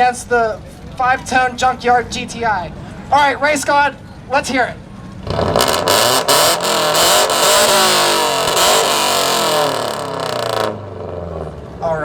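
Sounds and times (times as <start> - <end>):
exhaust cracks: 5.0 - 11.8
car exhaust revving: 5.1 - 11.8.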